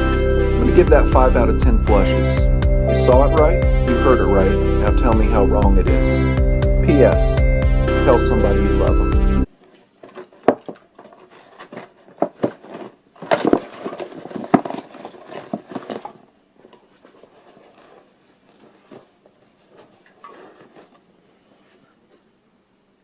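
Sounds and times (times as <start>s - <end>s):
objects tapping and knocking: 9.7s - 16.8s.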